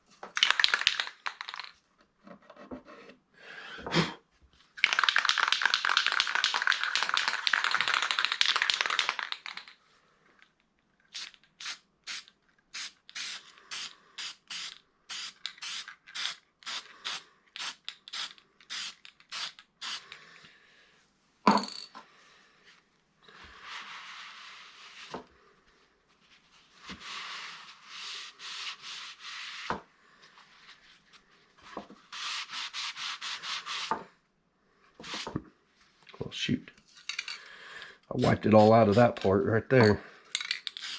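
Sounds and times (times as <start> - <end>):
spray paint can hissing: 11.1 - 20.1, 38.2 - 39.2, 40.6 - 40.9.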